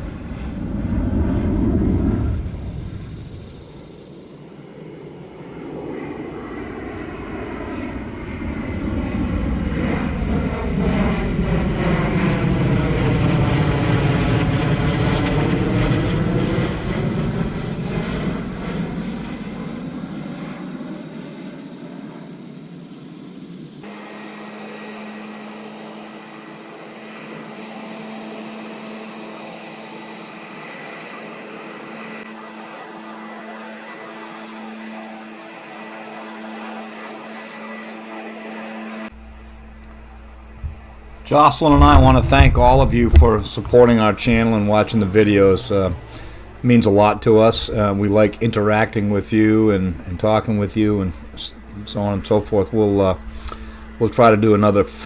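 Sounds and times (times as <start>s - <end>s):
airplane flying overhead: 0.0s - 55.0s
steady hum with held tones: 39.2s - 55.0s.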